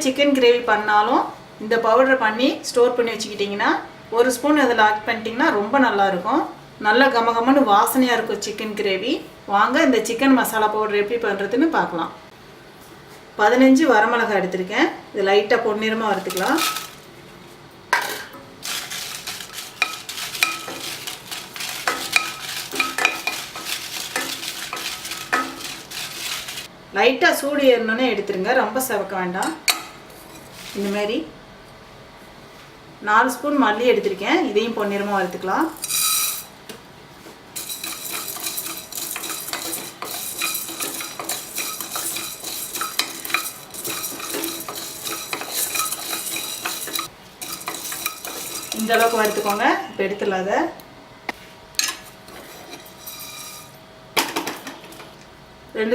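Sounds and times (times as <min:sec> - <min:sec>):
chillies rustling in pan: 0:16.0 - 0:17.6, 0:18.6 - 0:26.7, 0:30.1 - 0:31.2, 0:37.2 - 0:49.8
spatula clacking against pan: 0:37.6 - 0:49.6.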